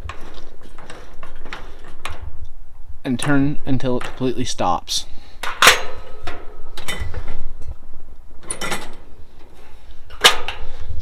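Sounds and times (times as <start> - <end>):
heater mechanism rattle: 0.0 - 11.0.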